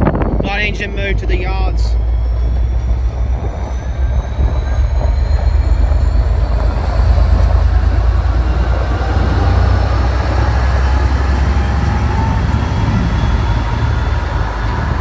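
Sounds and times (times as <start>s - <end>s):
high whine rising in pitch: 0.0s - 15.0s
locomotive engine rumble: 0.0s - 15.0s.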